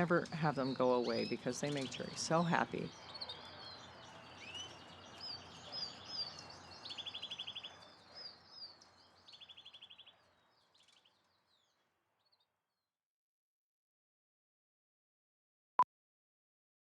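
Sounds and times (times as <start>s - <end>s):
small birds chirping: 0.0s - 12.5s
bird trills: 0.6s - 10.1s.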